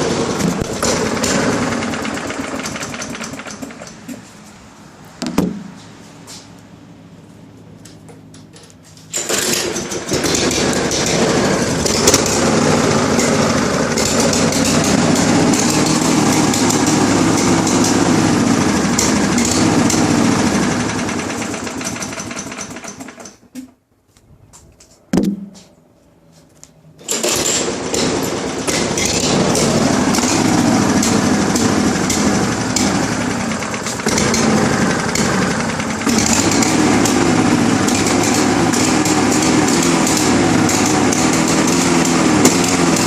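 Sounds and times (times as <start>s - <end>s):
lawn mower engine: 0.0s - 23.5s, 27.0s - 43.0s.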